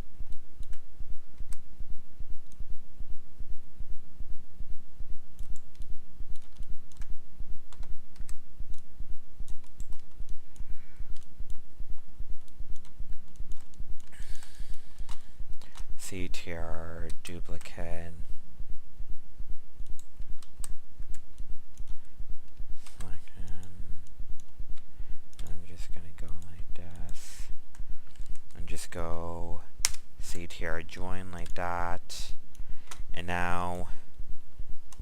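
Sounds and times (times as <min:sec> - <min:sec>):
pulsing low hum: 0:00.0 - 0:35.0
mouse and keyboard clicks: 0:12.4 - 0:15.9.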